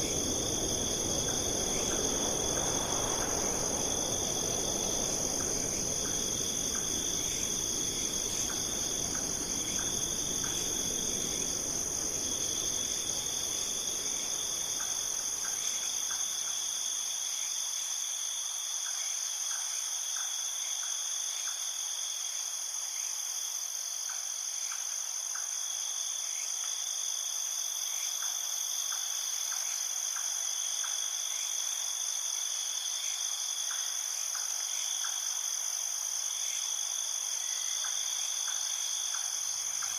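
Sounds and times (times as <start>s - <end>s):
low rushing noise: 0.0s - 15.8s
faint scattered ticks: 0.0s - 16.8s
crickets trilling: 0.0s - 39.9s.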